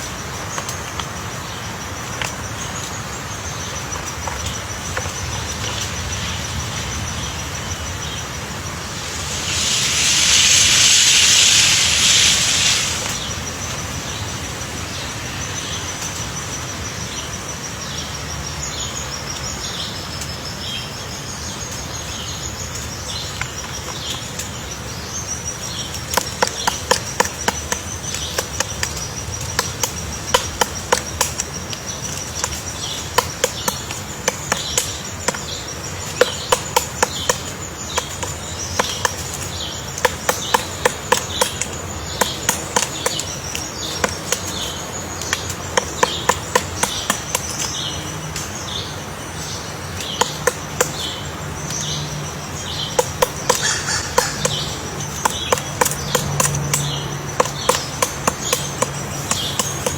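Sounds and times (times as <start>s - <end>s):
woodpecker knocking on wood: 8.8s - 13.2s, 26.1s - 48.5s, 52.8s - 59.9s.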